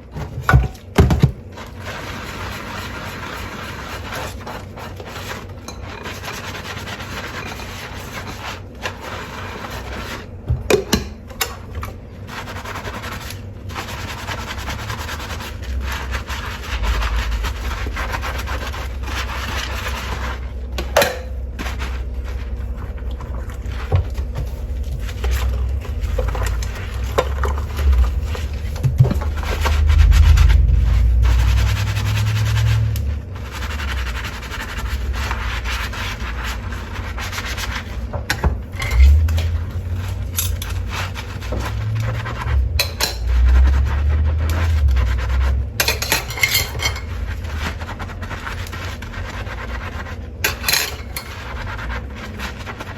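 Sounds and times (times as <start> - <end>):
scrubbing dishes: 0.0 - 52.9
running water rumble: 14.6 - 36.1
dishes clinking: 45.8 - 47.1.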